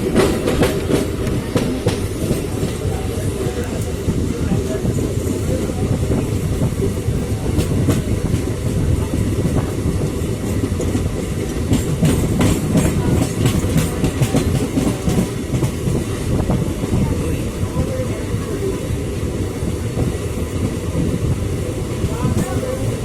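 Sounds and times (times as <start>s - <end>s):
wheels clacking over rail joints: 0.0s - 18.1s
train rumbling on rails: 0.0s - 23.0s.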